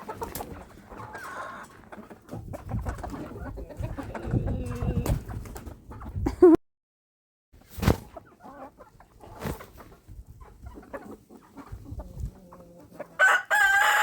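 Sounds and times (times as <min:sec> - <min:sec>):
chickens clucking: 0:00.0 - 0:06.3, 0:07.8 - 0:14.0
chicken squawk: 0:10.7 - 0:14.0.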